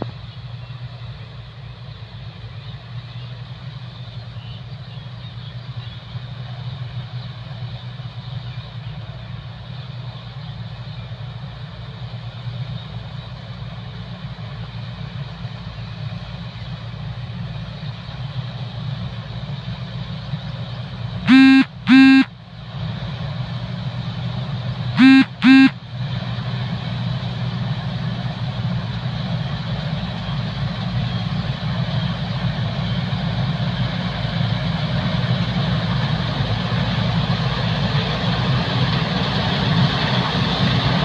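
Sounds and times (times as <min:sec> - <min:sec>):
combine harvester engine running: 0:00.0 - 0:41.0
loud horn honks: 0:21.3 - 0:22.3, 0:25.0 - 0:25.8.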